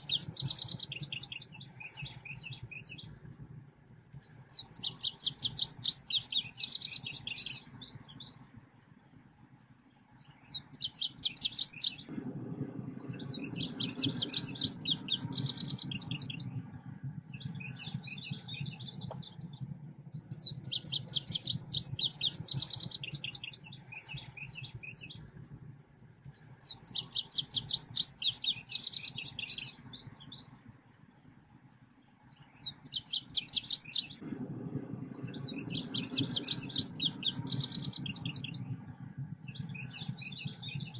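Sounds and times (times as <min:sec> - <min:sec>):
bird chirping trills: 0:00.0 - 0:03.4, 0:04.1 - 0:25.6, 0:26.2 - 0:40.9
low background hum: 0:00.0 - 0:40.9.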